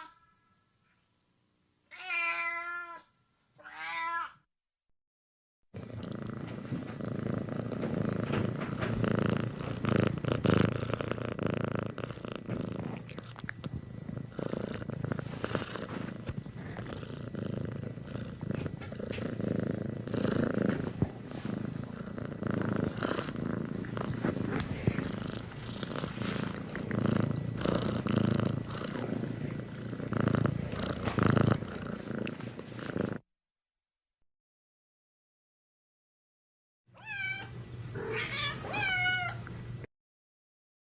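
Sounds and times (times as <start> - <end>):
cat purring: 5.8 - 33.3.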